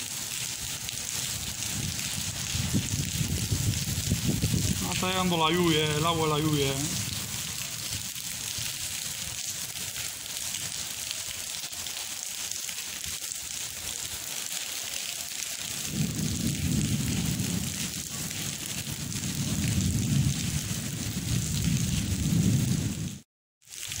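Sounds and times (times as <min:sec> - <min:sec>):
rain falling on wet paving: 0:00.0 - 0:24.0.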